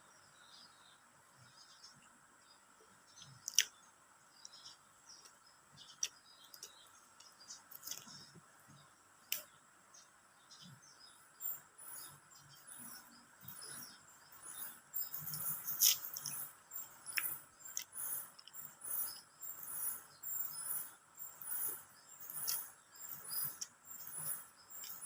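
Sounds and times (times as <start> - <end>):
insects chirring: 0.0 - 25.0
person chewing with mouth clicks: 3.4 - 3.7, 15.2 - 16.4, 17.0 - 19.2.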